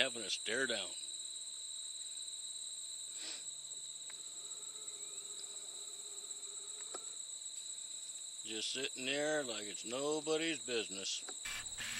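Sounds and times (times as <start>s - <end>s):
insects trilling: 0.0s - 11.9s
faint ticks: 6.7s - 7.7s.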